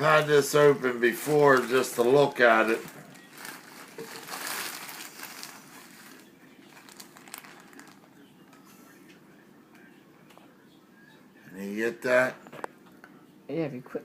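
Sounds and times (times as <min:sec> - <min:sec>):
packaging rustling and crinkling: 0:00.0 - 0:08.1.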